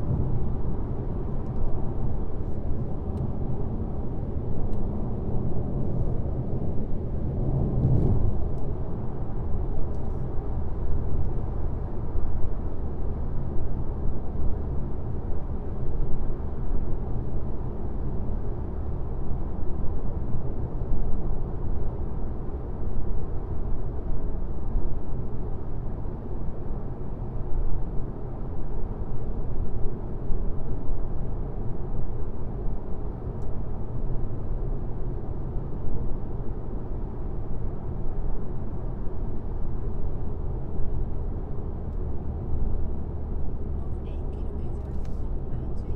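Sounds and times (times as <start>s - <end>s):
car road rumble: 0.0s - 13.3s, 39.9s - 45.9s.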